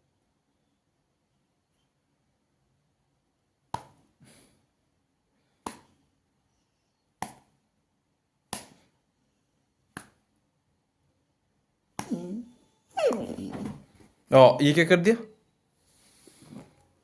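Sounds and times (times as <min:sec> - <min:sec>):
sharp smacks: 0:03.7 - 0:04.0, 0:05.6 - 0:06.0, 0:07.2 - 0:07.5, 0:08.5 - 0:08.9.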